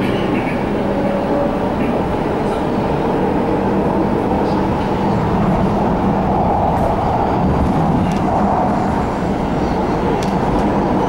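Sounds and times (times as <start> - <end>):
train rumbling from inside: 0.0 - 11.0.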